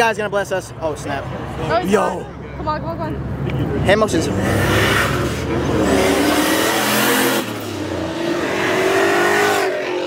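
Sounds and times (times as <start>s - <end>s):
car engine revving hard: 4.1s - 10.0s.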